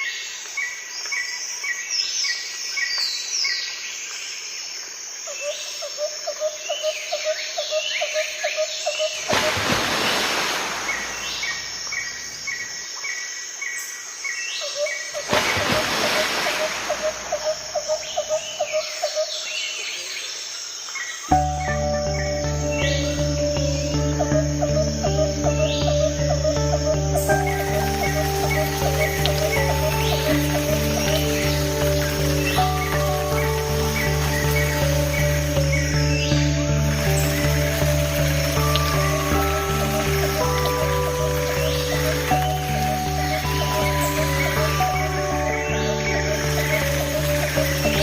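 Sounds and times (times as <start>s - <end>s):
insects buzzing: 3.7s - 48.0s
bird chirps: 21.0s - 48.0s.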